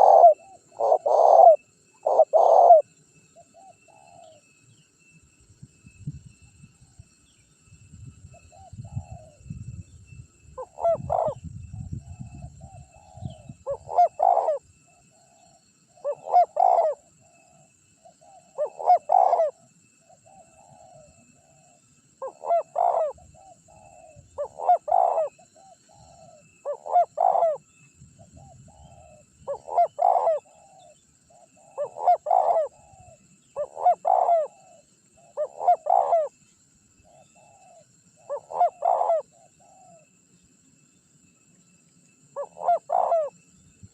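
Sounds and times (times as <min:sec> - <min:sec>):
dove cooing: 0:00.0 - 0:04.4, 0:10.6 - 0:19.6, 0:20.2 - 0:36.4, 0:37.1 - 0:40.0, 0:42.4 - 0:43.4.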